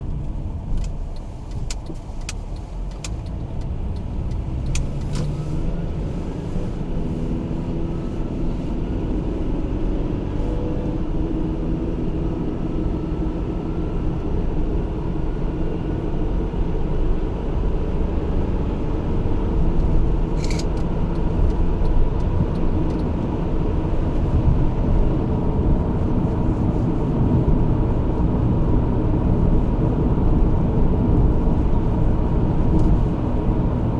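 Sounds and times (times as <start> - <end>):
car engine and road rumble: 0.0 - 33.9
sharp click: 20.4 - 20.9.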